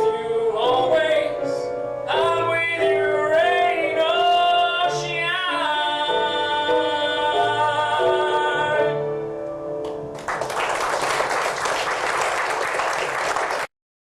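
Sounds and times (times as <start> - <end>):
man singing: 0.0 - 9.3
audience applause: 10.2 - 13.7.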